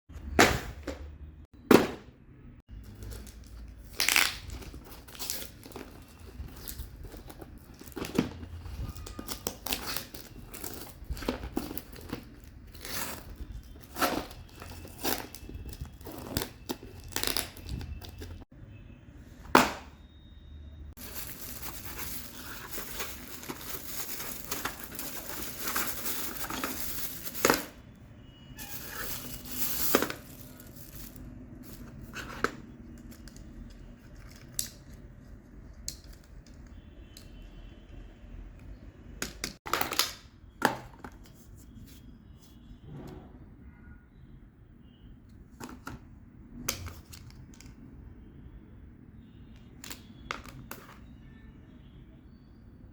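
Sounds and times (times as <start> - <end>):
packaging crinkling and tearing: 2.8 - 18.4, 21.0 - 27.8, 28.6 - 32.6.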